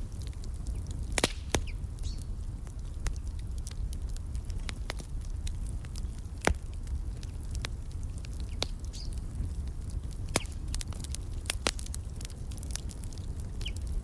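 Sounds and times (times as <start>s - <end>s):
low rumble of flames: 0.0s - 14.0s
wood fire crackling: 0.0s - 14.0s
faint bird chirps: 8.9s - 9.2s.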